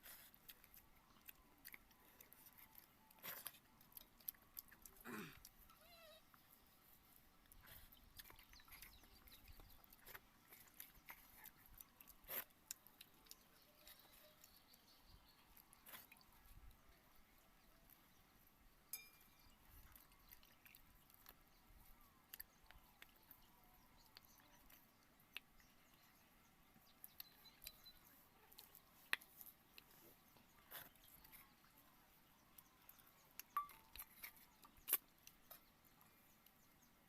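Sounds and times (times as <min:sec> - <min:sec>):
quiet chewing: 0:00.0 - 0:37.0
small clicks and smacks: 0:28.5 - 0:31.4, 0:32.6 - 0:35.7.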